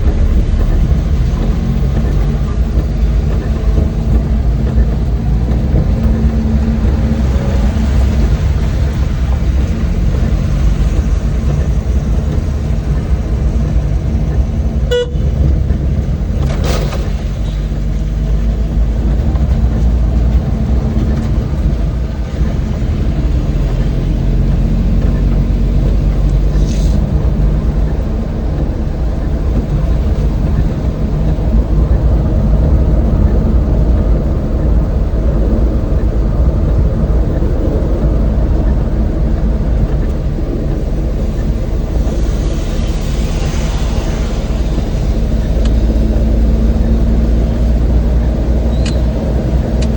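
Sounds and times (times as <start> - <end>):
van engine and road rumble: 0.0 - 49.9
hiss: 26.5 - 27.1, 41.4 - 46.8.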